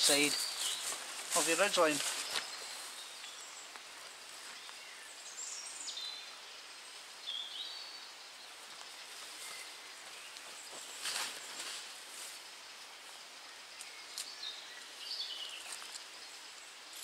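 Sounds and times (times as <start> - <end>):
songbird singing: 0.0 - 17.0
steady faint hiss: 0.0 - 17.0.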